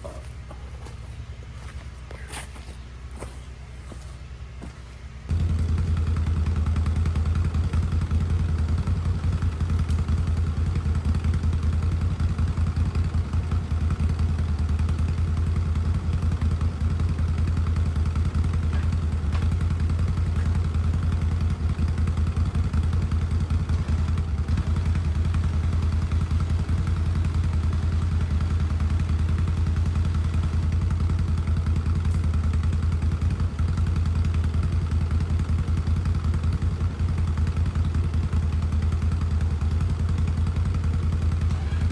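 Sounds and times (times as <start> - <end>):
small gasoline engine running: 0.0 - 41.9.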